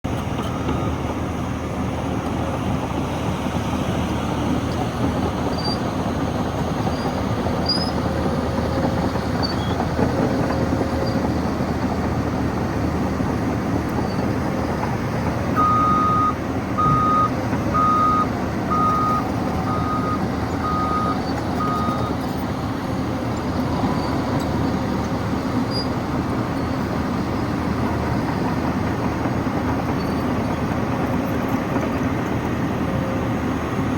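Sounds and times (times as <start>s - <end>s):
diesel engine running: 0.0s - 33.9s
reverse alarm beeping: 15.6s - 22.2s.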